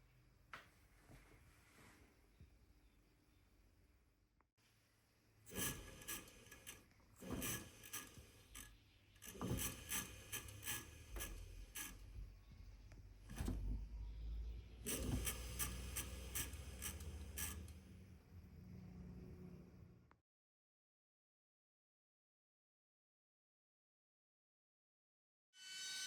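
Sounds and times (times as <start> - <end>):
scraping on machine parts: 5.5 - 12.1, 14.8 - 17.8
rapid clicking of machine parts: 14.9 - 17.8.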